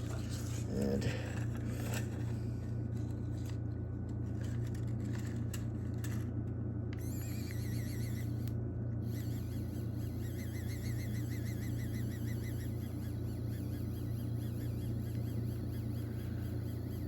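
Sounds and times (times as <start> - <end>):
steady low hum: 0.0 - 17.0
high wavering tone: 7.0 - 17.0.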